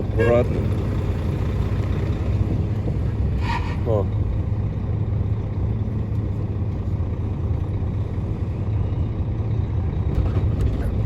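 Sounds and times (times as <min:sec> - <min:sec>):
diesel truck engine rumbling: 0:00.0 - 0:11.0.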